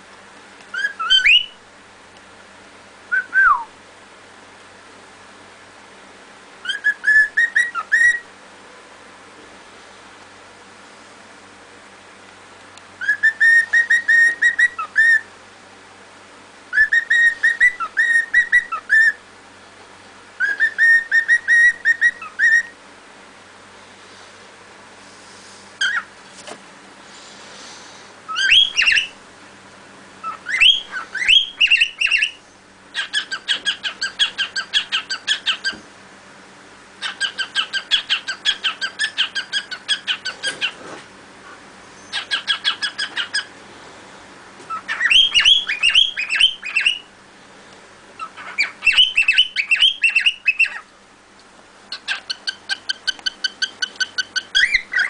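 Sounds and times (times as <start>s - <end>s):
cockatiel chirping and whistling: 0.7s - 1.6s, 6.6s - 8.2s, 13.0s - 15.3s, 16.7s - 19.2s, 20.4s - 22.7s, 25.8s - 26.1s, 28.3s - 29.2s, 30.2s - 32.4s, 33.0s - 35.8s, 37.0s - 40.7s, 42.0s - 43.5s, 44.7s - 47.1s, 48.2s - 50.8s, 51.9s - 55.0s.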